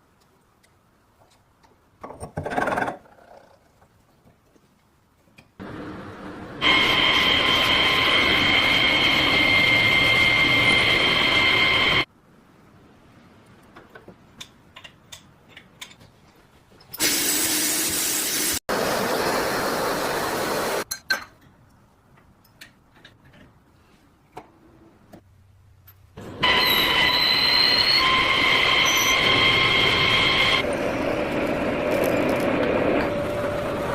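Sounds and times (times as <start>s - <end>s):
loud rushing power tool: 5.6s - 12.1s, 26.2s - 33.9s
clicks and taps of small parts: 13.5s - 16.1s.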